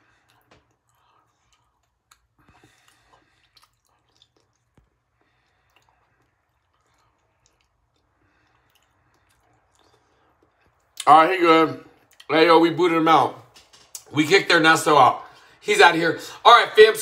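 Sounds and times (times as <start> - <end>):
soft chewing mouth clicks: 0.2 - 11.1, 12.0 - 12.3.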